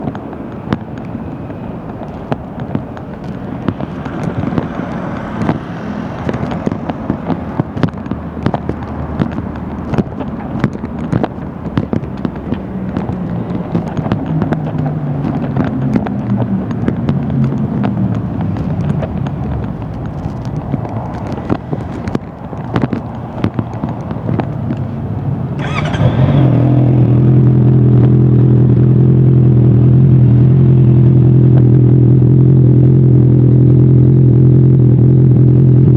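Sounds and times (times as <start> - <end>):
sharp clicks and crackles: 0.0 - 28.5
motorcycle engine running: 0.0 - 35.9.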